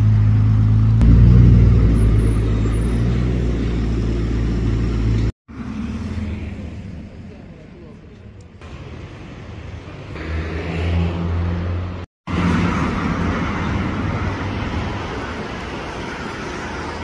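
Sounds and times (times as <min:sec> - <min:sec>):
car engine low hum: 0:00.0 - 0:07.4
cars driving past: 0:00.0 - 0:07.4, 0:08.6 - 0:17.0.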